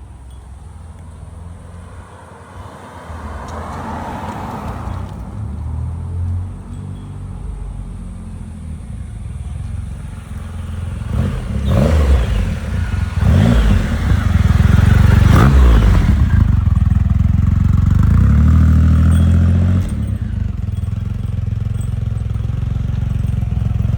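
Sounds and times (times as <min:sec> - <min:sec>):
motorcycle engine revving: 0:07.6 - 0:23.9.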